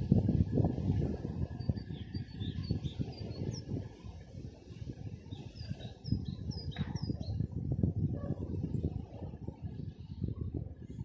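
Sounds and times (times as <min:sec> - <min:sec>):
songbirds chirping: 0:01.4 - 0:03.9, 0:05.1 - 0:07.5.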